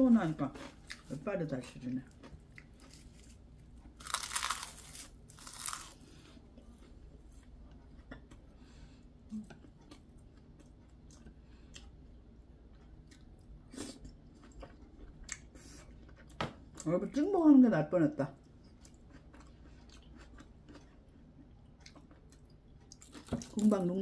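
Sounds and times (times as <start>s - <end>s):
seaweed crunching when bitten: 4.0s - 6.0s.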